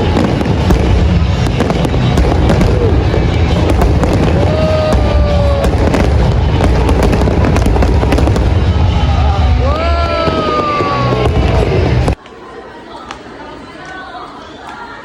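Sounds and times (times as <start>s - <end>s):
low rumble: 0.0s - 10.3s
background music: 0.0s - 12.2s
dense crackling and popping: 0.0s - 12.2s.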